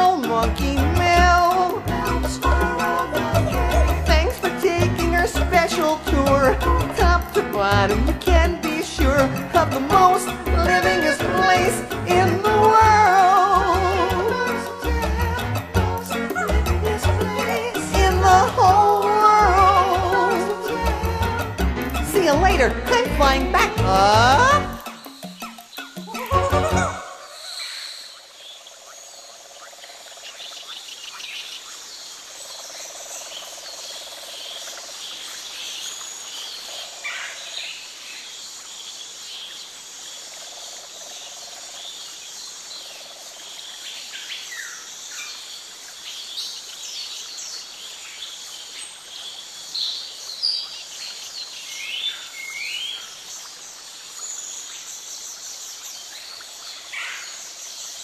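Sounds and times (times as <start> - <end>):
chorus of insects: 27.2 - 58.0.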